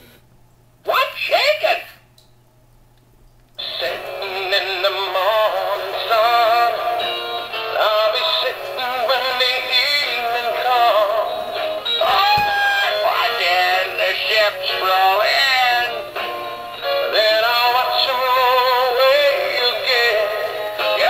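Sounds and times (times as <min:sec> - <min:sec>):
backing music from small speaker: 0:03.6 - 0:21.0
toy singing in synthetic voice: 0:12.1 - 0:16.0, 0:17.0 - 0:21.0.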